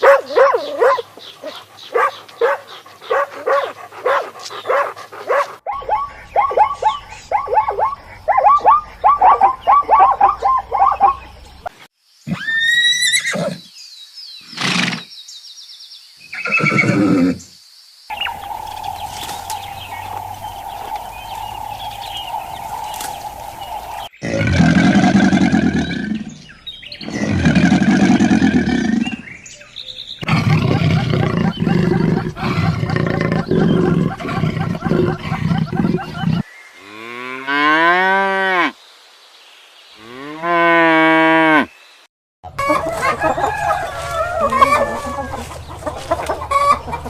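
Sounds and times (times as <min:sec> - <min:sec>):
rapid yapping calls: 0:00.0 - 0:11.3
horse whinnying: 0:12.3 - 0:13.6, 0:16.4 - 0:17.4
long low animal calls: 0:18.1 - 0:26.3, 0:30.2 - 0:36.4.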